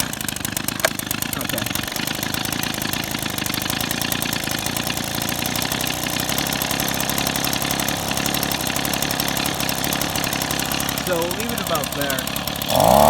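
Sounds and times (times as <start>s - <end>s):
leaf blower engine idling: 0.0s - 13.0s.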